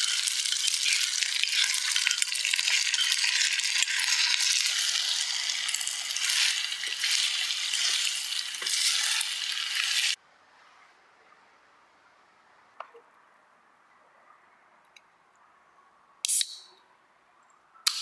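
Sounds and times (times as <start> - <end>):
food sizzling in hot oil: 0.0 - 10.2.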